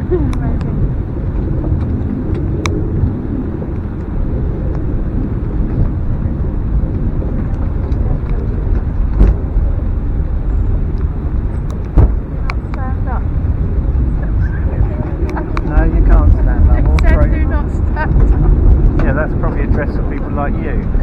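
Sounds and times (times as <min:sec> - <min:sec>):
funicular car rumbling on rails: 0:00.0 - 0:21.0.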